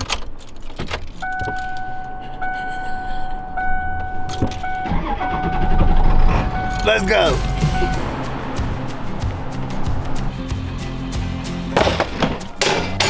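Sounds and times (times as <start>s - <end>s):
keys jangling: 0.0s - 2.6s, 4.2s - 4.8s
vehicle warning chime: 1.2s - 8.6s.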